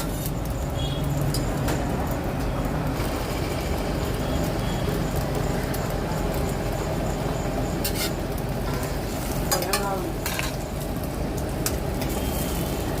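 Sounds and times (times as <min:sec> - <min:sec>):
metal spatula scraping griddle: 0:07.8 - 0:10.6.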